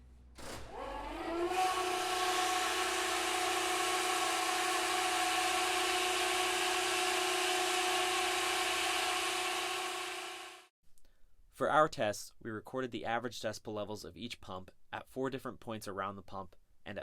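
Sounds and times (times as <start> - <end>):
foam pump whining: 0.5 - 10.7.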